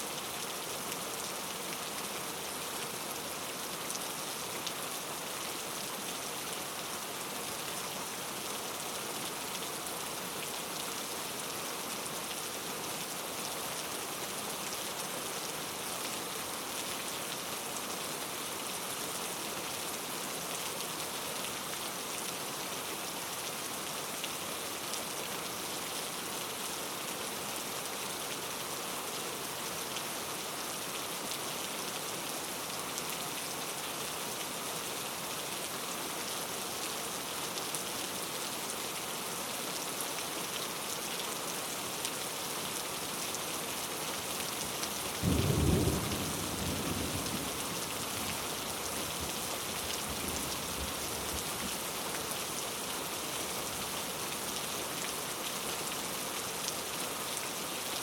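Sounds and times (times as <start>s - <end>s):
rainfall hissing: 39.2s - 57.6s.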